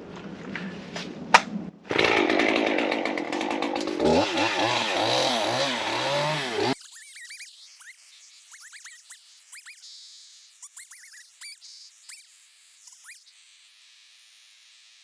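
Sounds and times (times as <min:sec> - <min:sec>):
chainsaw revving: 0:01.9 - 0:06.9.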